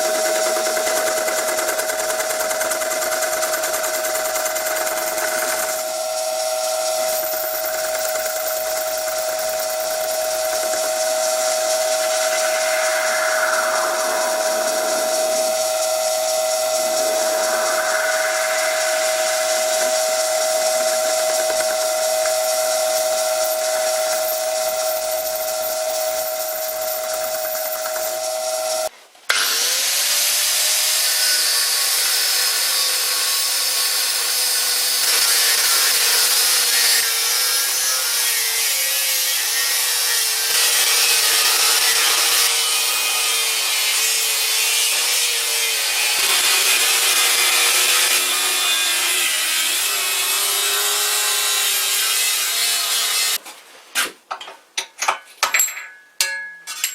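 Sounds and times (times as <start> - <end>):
machine motor spinning up: 0.0 - 24.7
power tool machining metal: 0.0 - 53.4.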